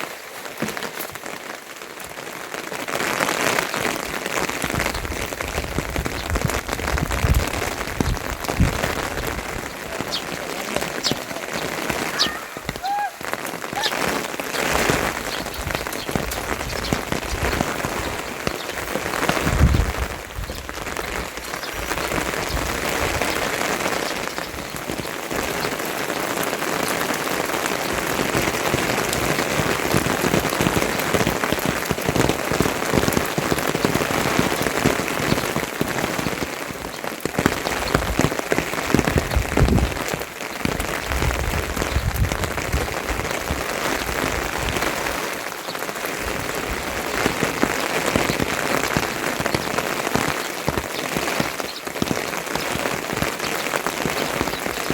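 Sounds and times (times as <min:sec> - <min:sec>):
rain falling: 0:00.0 - 0:54.9.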